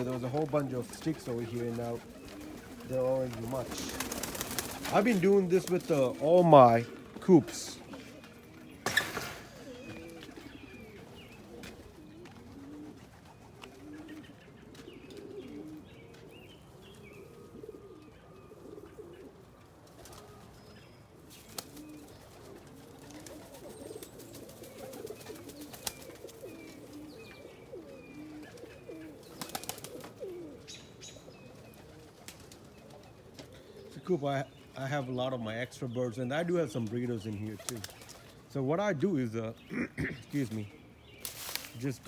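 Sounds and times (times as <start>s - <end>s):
pigeons cooing: 0.0s - 42.0s.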